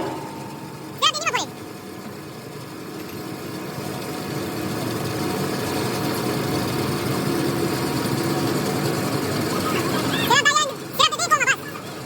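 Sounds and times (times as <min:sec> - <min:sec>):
machine humming: 0:00.0 - 0:01.6.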